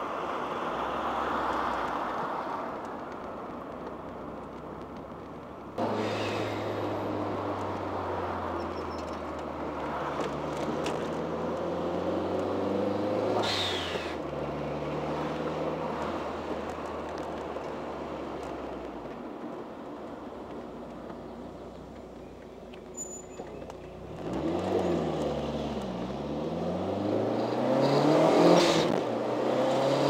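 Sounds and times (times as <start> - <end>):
turbocharged car engine accelerating: 9.7 - 16.3, 24.1 - 30.0.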